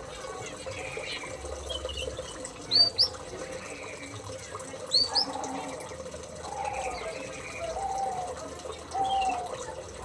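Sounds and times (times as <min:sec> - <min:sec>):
small birds chirping: 0:00.0 - 0:04.2, 0:04.9 - 0:05.7.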